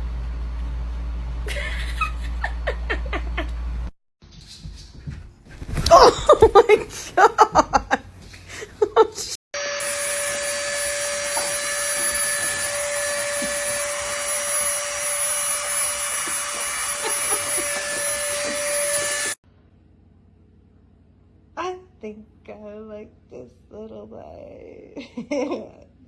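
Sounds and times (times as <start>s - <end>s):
small electric motor whining: 9.6s - 19.4s.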